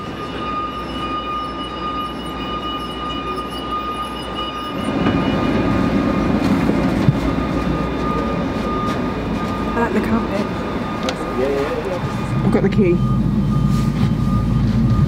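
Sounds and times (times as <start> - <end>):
footsteps boarding train: 0.0 - 12.3
high whine: 0.0 - 15.0
low rumble: 0.0 - 15.0
train humming: 0.0 - 15.0.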